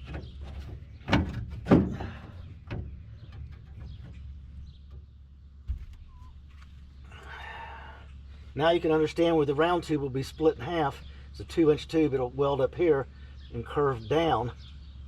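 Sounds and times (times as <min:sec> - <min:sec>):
dull thump: 0:00.0 - 0:06.1.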